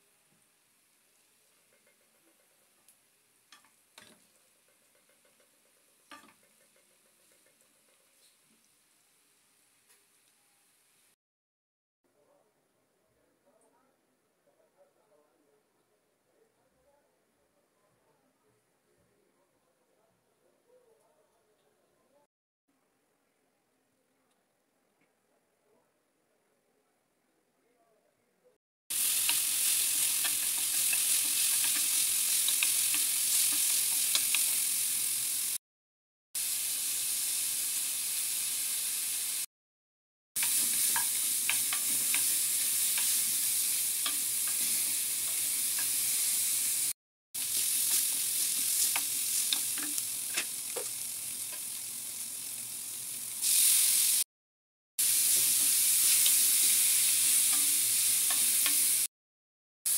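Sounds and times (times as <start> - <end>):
food sizzling in a pan: 0.0 - 11.2, 28.9 - 35.6, 36.4 - 39.5, 40.4 - 54.3, 55.0 - 59.1
utensil clicking against pan: 30.0 - 34.6, 48.8 - 51.8.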